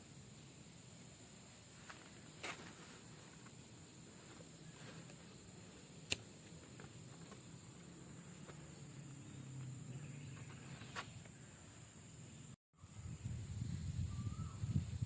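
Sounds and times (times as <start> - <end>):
sharp click: 6.1 - 6.3.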